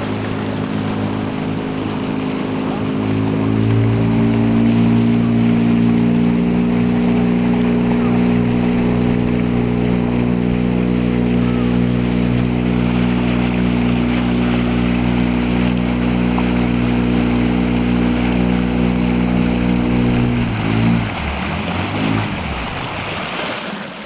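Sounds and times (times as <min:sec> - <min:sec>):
motorboat engine running: 0:00.0 - 0:23.5
rush of water: 0:00.0 - 0:24.0.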